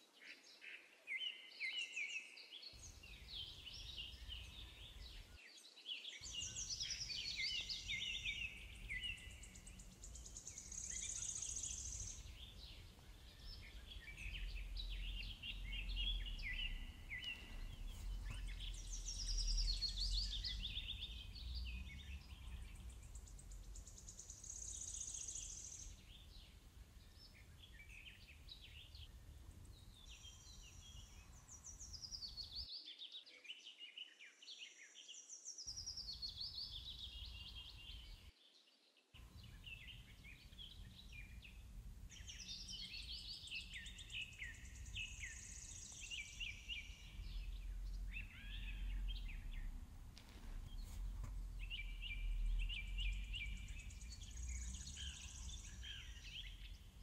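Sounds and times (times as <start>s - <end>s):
birds chirping and trilling: 1.2s - 32.7s, 35.7s - 38.3s, 39.2s - 57.0s
faint low rumble: 6.2s - 32.5s, 39.2s - 57.0s.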